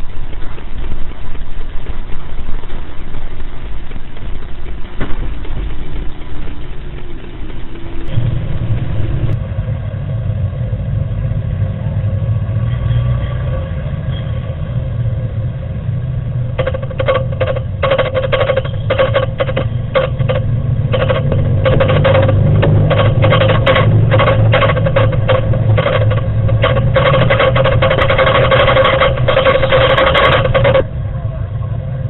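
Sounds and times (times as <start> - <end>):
deep rumble of building shaking: 0.0 - 12.6, 14.4 - 32.0
objects rattling and buzzing: 16.2 - 31.0.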